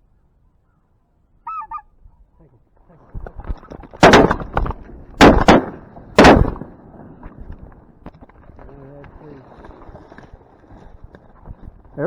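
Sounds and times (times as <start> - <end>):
goose honking: 1.4 - 1.9
shotgun shots: 4.0 - 7.1.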